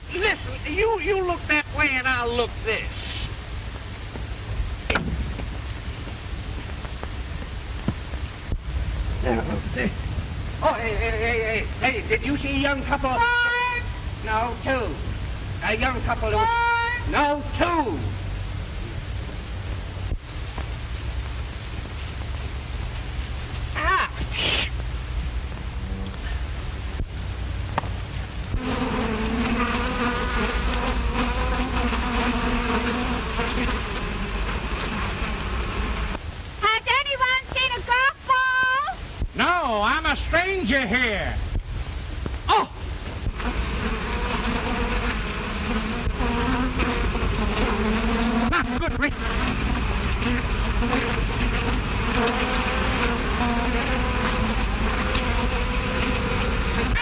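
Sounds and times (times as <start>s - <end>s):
film soundtrack hum and hiss: 0.0s - 57.0s
bee buzzing drone: 28.5s - 36.2s, 43.2s - 57.0s.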